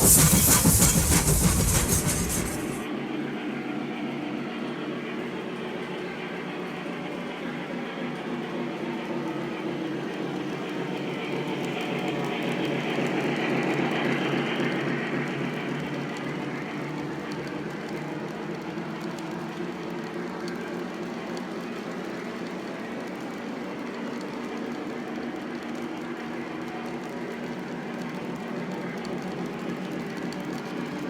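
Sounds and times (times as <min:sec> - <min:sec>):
model train wheels rumbling: 0:00.0 - 0:02.8.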